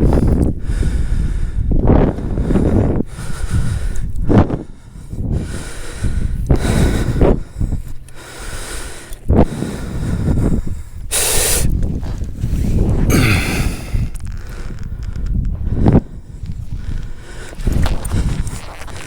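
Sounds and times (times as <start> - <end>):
person breathing hard: 0.0 - 11.8, 12.4 - 18.4.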